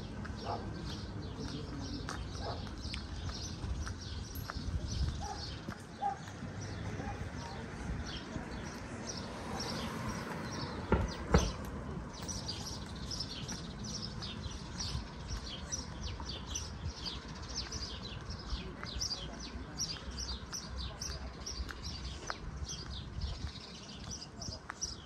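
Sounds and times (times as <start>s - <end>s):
small birds chirping: 0.0s - 25.0s
sharp knocks: 10.8s - 11.6s.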